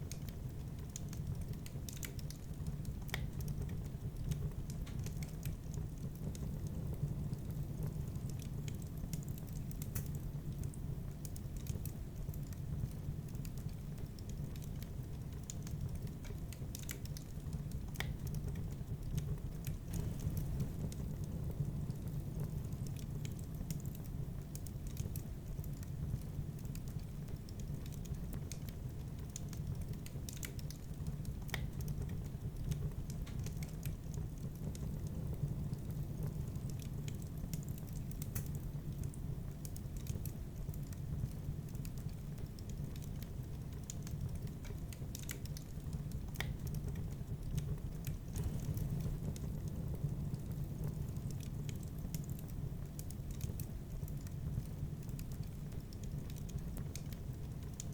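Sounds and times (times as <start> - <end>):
fireplace fire crackling: 0.0 - 57.9
low rumble of flames: 0.0 - 57.9.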